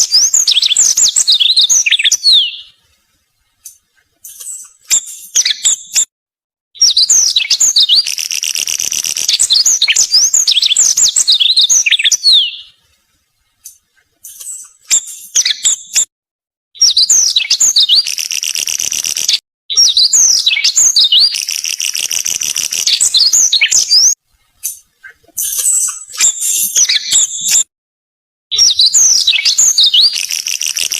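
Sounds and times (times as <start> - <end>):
bird singing buzzy trills: 28.6 - 30.9.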